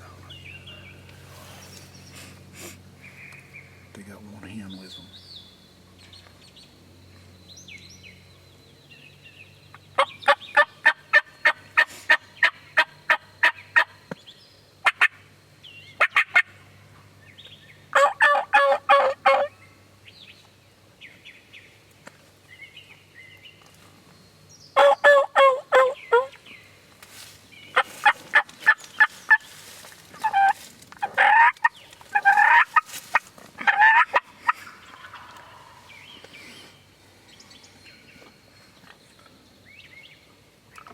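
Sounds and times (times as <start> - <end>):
turkeys gobbling: 10.0 - 13.9, 14.8 - 15.2, 16.0 - 16.6, 17.9 - 19.5, 24.8 - 26.4, 27.7 - 29.5, 30.2 - 36.0
turkeys yelping: 10.0 - 14.0, 14.8 - 15.2, 16.0 - 16.6, 17.9 - 19.5, 24.8 - 26.4, 27.7 - 36.6.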